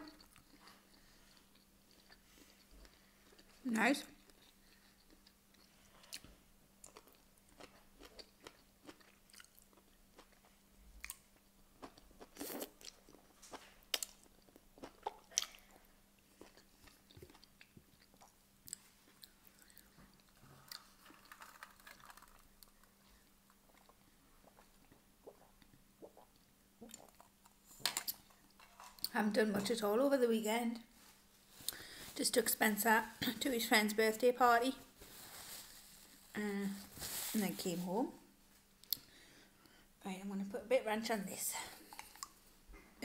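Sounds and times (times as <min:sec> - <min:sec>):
faint steady hum: 0:00.0 - 0:43.0
person chewing asparagus: 0:00.1 - 0:03.6, 0:04.2 - 0:29.1, 0:41.8 - 0:42.4
wet mouth clicks: 0:25.2 - 0:27.3.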